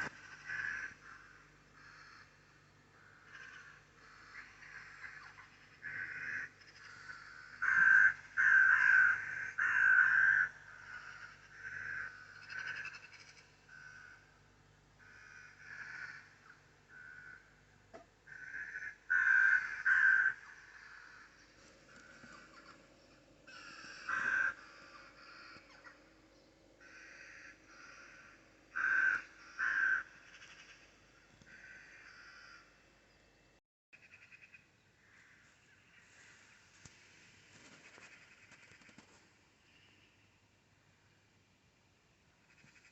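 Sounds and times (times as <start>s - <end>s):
large bird harsh calls: 0.0s - 14.4s, 15.0s - 17.6s, 18.3s - 32.8s.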